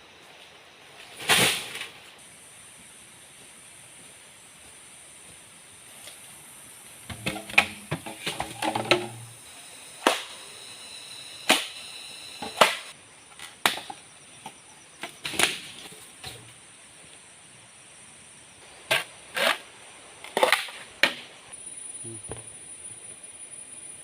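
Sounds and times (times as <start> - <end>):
blade chopping into wood: 10.0 - 10.4, 11.4 - 11.8, 12.4 - 12.9.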